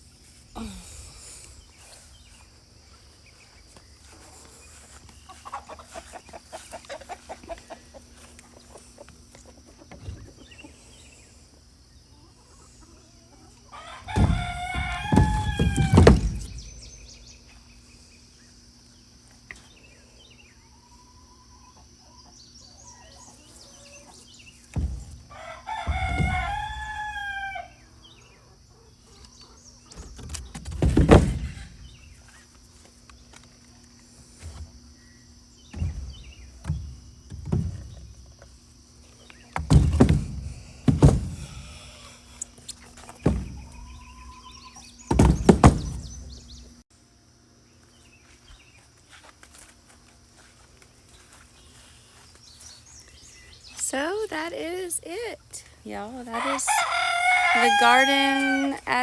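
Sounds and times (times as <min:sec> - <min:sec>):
chickens clucking: 0:01.4 - 0:18.0, 0:18.8 - 0:30.5, 0:55.9 - 0:59.0
rooster crowing: 0:13.7 - 0:16.3, 0:25.3 - 0:27.9, 0:56.3 - 0:58.8.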